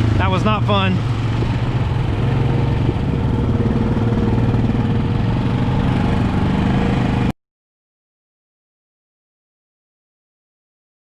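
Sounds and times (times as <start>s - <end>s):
atv engine idling: 0.0s - 6.6s.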